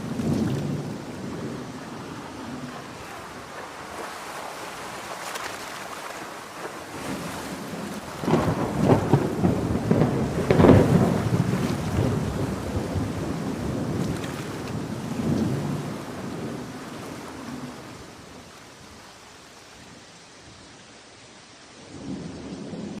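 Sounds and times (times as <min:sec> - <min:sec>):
thunder rolling: 0:00.0 - 0:04.1, 0:06.9 - 0:18.4
steady rain: 0:00.0 - 0:23.0.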